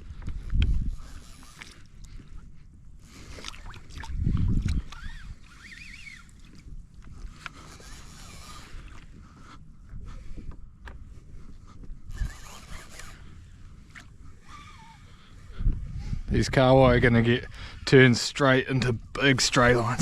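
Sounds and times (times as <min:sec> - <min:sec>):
wind rumbling on microphone: 0:00.0 - 0:17.9
water sloshing against hull: 0:00.1 - 0:15.9.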